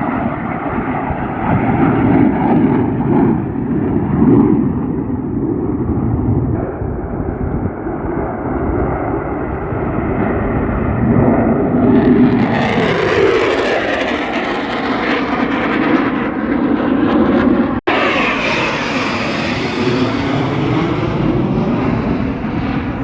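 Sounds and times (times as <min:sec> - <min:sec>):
aircraft engine noise: 0:00.0 - 0:23.0.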